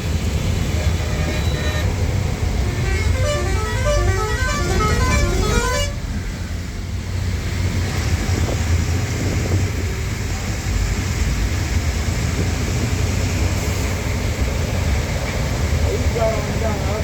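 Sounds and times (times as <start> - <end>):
lorry engine rumbling: 0.0 - 17.0
musical horn tune: 0.7 - 6.0.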